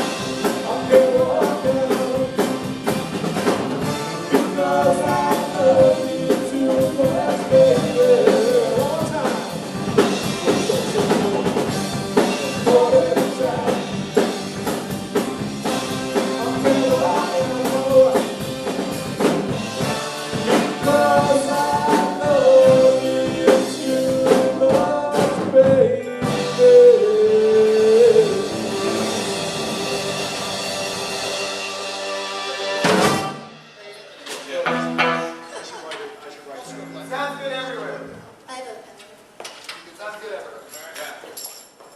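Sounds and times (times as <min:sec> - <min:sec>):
live rock band: 0:00.0 - 0:35.8
person singing long notes: 0:04.0 - 0:09.4, 0:10.4 - 0:14.1, 0:15.6 - 0:18.8, 0:20.5 - 0:30.2
drum hits: 0:27.9 - 0:35.5.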